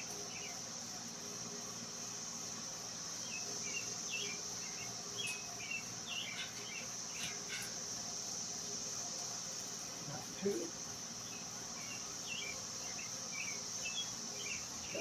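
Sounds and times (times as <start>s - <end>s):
insects droning: 0.0s - 15.0s
bird chirping: 3.2s - 7.7s, 11.2s - 15.0s.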